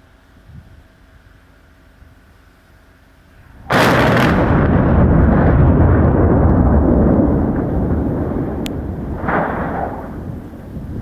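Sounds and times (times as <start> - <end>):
long rumble: 3.4 - 11.0
explosive blast: 3.6 - 11.0.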